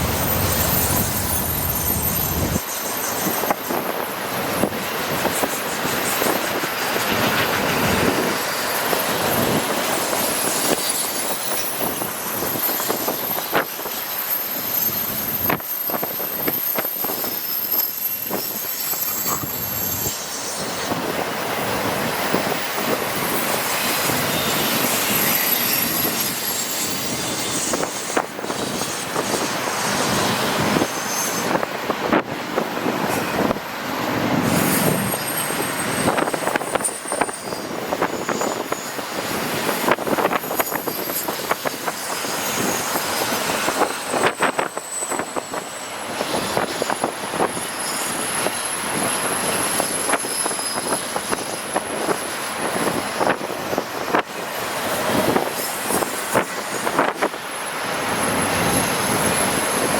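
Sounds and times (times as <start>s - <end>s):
high-pitched wheel squeal: 0.0s - 4.7s, 8.5s - 21.0s, 23.3s - 28.2s, 34.5s - 39.0s, 40.1s - 52.2s
train wheels rushing on rail: 0.0s - 59.9s.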